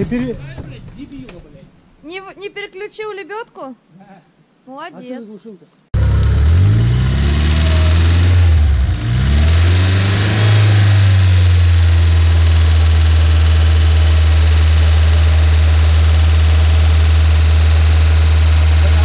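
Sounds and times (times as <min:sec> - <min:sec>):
off-road vehicle engine revving: 0:06.0 - 0:19.0.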